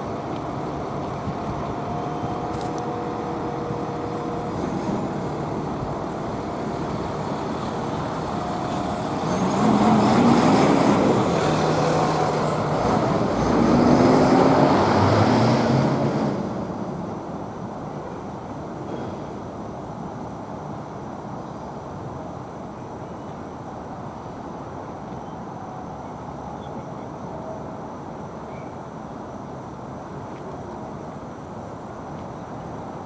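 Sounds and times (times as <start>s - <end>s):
road traffic passing: 0.0s - 19.7s
heavy vehicles passing close: 0.0s - 20.6s.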